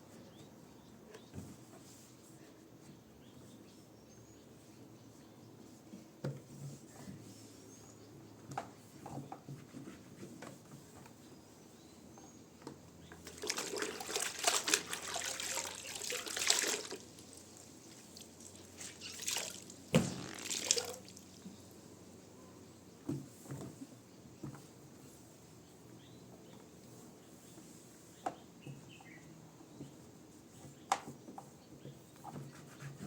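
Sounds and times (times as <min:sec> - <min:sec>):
water running and splashing: 0:13.3 - 0:21.4
sharp knock: 0:20.0 - 0:20.5.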